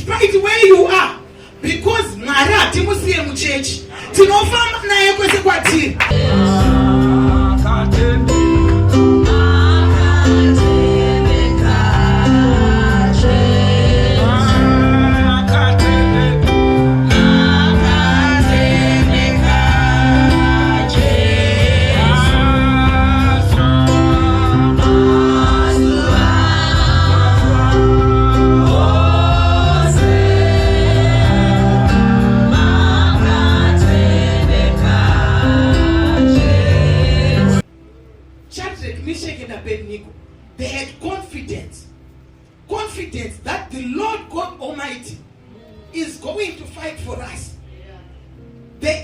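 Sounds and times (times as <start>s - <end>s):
choir singing gospel music: 1.9s - 37.7s
bass line: 5.9s - 38.5s.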